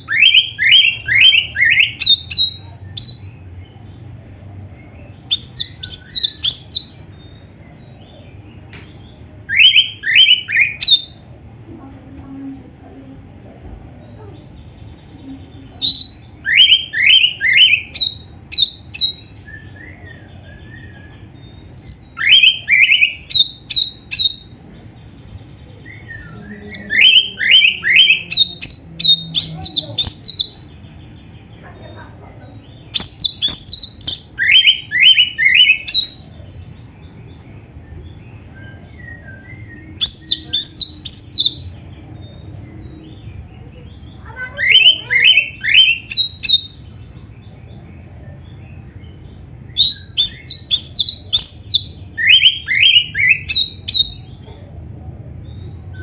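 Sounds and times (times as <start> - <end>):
bird singing whistled notes: 0.0 - 3.5, 4.8 - 8.0, 9.1 - 11.2, 15.1 - 30.7, 32.8 - 36.3, 37.0 - 43.4, 44.0 - 54.3.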